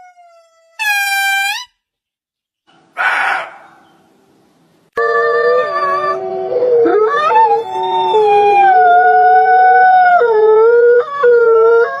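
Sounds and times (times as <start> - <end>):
dog howling: 3.0 - 3.8, 5.5 - 12.0.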